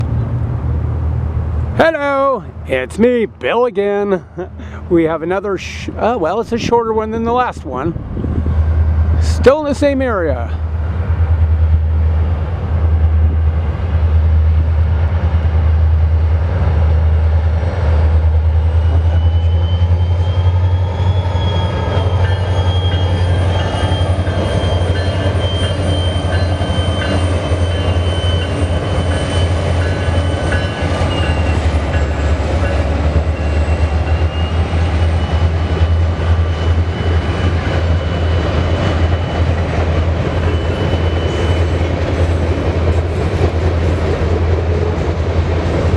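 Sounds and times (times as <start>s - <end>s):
train rumbling past: 0.0s - 45.9s
high wheel squeal: 18.6s - 39.6s, 40.3s - 42.4s.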